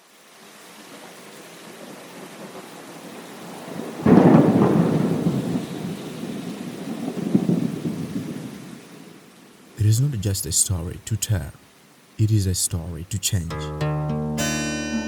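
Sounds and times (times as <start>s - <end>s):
steady rain: 0.0s - 9.8s.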